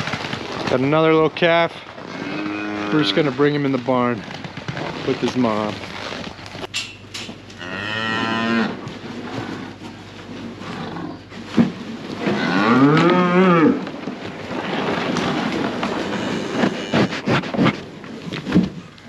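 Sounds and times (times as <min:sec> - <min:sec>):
cattle mooing: 0:02.1 - 0:03.4, 0:07.6 - 0:08.8, 0:12.2 - 0:13.9, 0:15.6 - 0:17.3.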